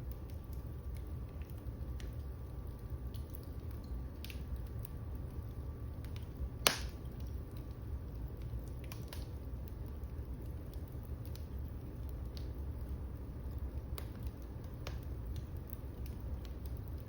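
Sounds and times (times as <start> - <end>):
wood fire crackling: 0.0 - 17.0
loud sharp pop of fire: 6.6 - 7.0.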